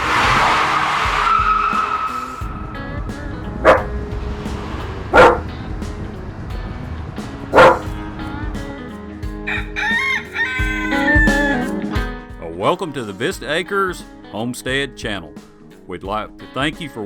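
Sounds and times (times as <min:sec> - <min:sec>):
background music: 0:00.0 - 0:17.0
chickens calling: 0:09.5 - 0:11.7
rooster crowing: 0:09.5 - 0:11.7.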